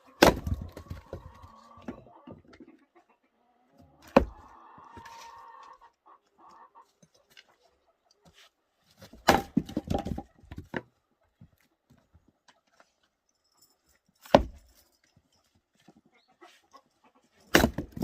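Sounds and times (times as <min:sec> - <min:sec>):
axe strike on wood: 0:00.2 - 0:00.6, 0:09.2 - 0:10.0, 0:14.3 - 0:14.6, 0:17.5 - 0:18.0
split wood clattering down: 0:00.2 - 0:01.3, 0:09.1 - 0:10.8, 0:17.5 - 0:18.0.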